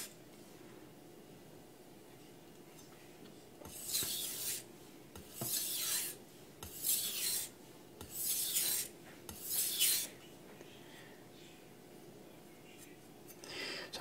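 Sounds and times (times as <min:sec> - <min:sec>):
knife stroked across sharpening stone: 0:03.7 - 0:04.6, 0:05.2 - 0:10.1.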